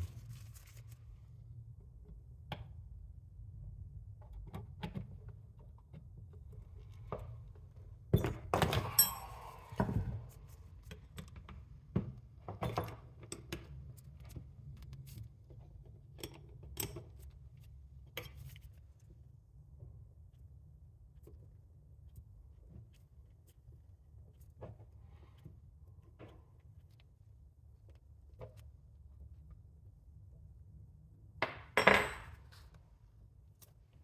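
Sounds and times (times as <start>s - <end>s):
metal tools clicking and knocking: 8.6s - 9.5s.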